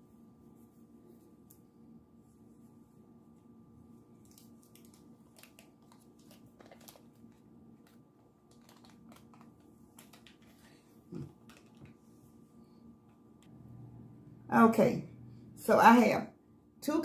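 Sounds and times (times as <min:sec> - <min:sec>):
clicks and crinkles of handling: 0:04.2 - 0:12.0.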